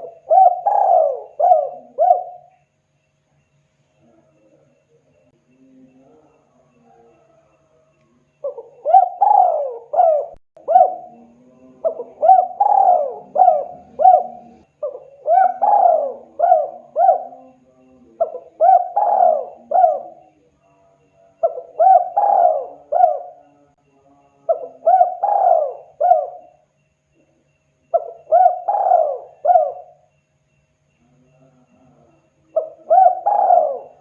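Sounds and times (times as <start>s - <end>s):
dove cooing: 0.0s - 2.6s, 8.4s - 20.4s, 21.4s - 23.7s, 24.5s - 26.6s, 27.9s - 30.1s, 31.5s - 34.0s.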